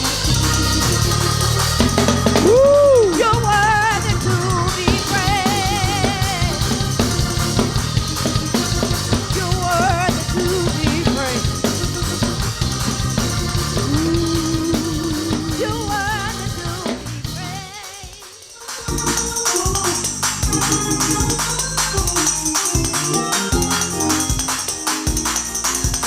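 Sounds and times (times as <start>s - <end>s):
drum kit beat: 0.0s - 26.0s
lead melody with vibrato: 20.4s - 26.0s.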